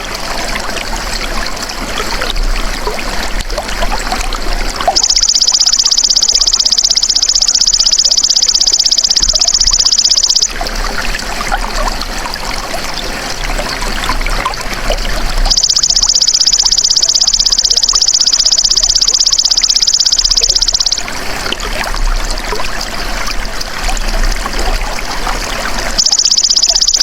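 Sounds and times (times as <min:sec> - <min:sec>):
trickle of running water: 0:00.0 - 0:27.0
insect high-pitched trill: 0:04.9 - 0:10.5, 0:15.5 - 0:21.1, 0:25.9 - 0:27.0.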